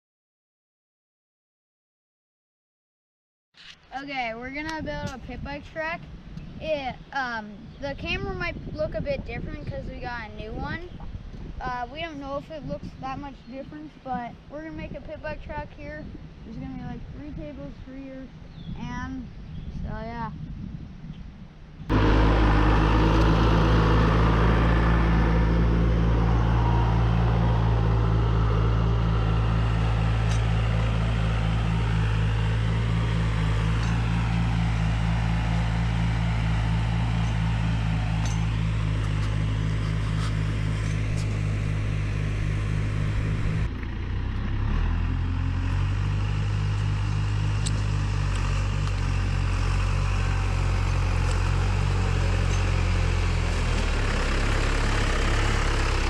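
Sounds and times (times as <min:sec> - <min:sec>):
engine running steadily: 0:21.9 - 0:56.0.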